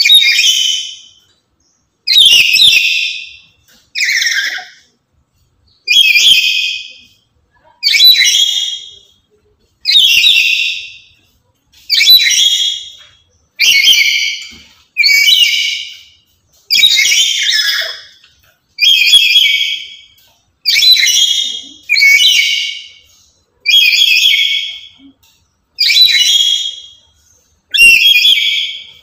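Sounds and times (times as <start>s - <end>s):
parrot screeching calls: 2.1s - 3.3s, 4.0s - 4.8s, 11.9s - 12.9s, 13.6s - 16.0s, 16.7s - 18.1s, 18.8s - 20.0s, 23.6s - 24.9s, 25.8s - 26.9s, 27.7s - 28.8s.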